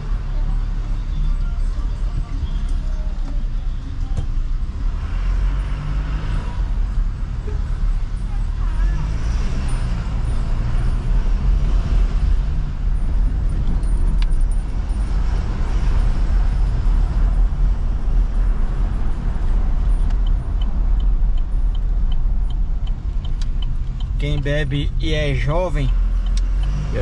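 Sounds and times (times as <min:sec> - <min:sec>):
car engine and road rumble: 0:00.0 - 0:27.0
light regular ticking: 0:18.7 - 0:27.0.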